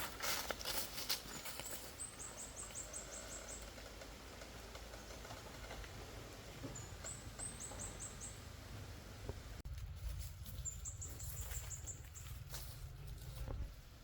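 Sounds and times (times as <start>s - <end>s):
small bird chirping: 1.4s - 3.7s, 6.7s - 8.6s, 10.5s - 12.5s.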